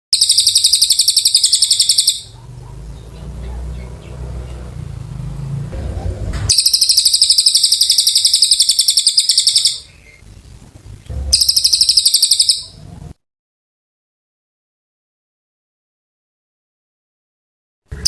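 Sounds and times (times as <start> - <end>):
songbird trilling: 0.2 - 5.7, 6.5 - 13.1
low rumble: 2.6 - 7.0, 9.9 - 11.8.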